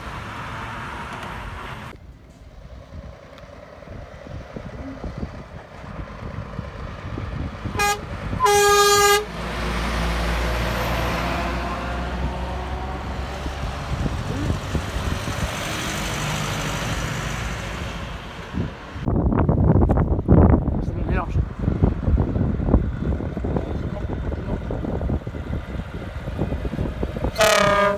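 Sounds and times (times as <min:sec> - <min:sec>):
road noise: 0:00.0 - 0:27.9
truck engine rumble driving past: 0:00.0 - 0:27.9
truck horn blast: 0:07.7 - 0:09.4, 0:27.3 - 0:27.9.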